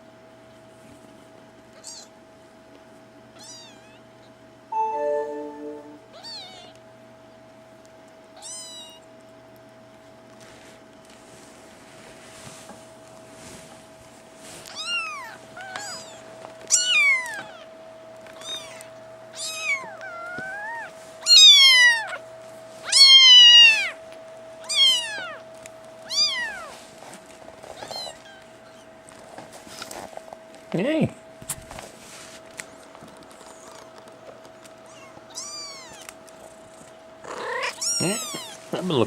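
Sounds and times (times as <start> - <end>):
kittens mewing: 22.8 - 24.0, 34.8 - 36.6, 37.2 - 38.7.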